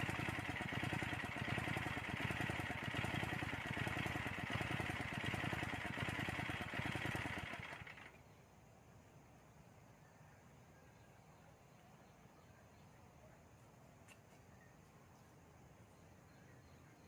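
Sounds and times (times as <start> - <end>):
tiller engine running: 0.0 - 8.2.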